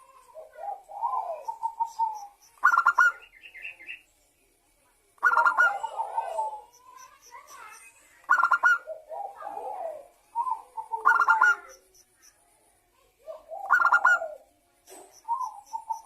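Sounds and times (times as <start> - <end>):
dove cooing: 0.0 - 3.2, 5.2 - 6.7, 8.3 - 11.8, 13.2 - 14.5, 15.2 - 16.0.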